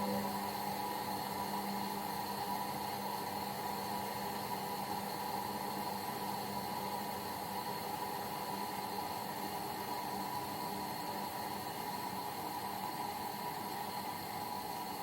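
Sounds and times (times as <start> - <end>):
washing machine hum and hiss: 0.0 - 15.0.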